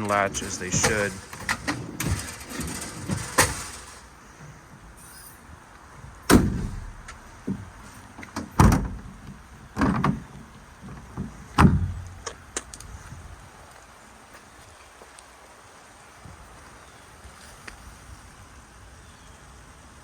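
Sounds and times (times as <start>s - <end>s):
latch clicks and knocks: 0.0s - 4.1s, 6.3s - 10.3s
truck compartments banging shut: 0.0s - 5.4s, 6.1s - 12.3s.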